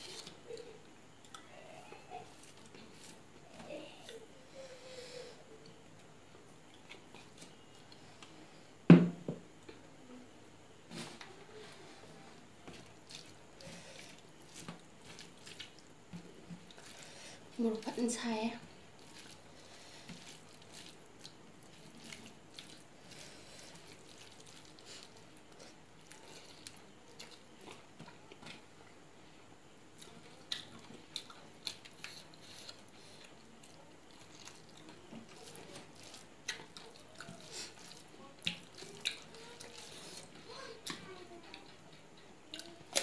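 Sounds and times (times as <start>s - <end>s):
chewing with mouth clicks: 20.1s - 28.5s, 30.0s - 41.7s.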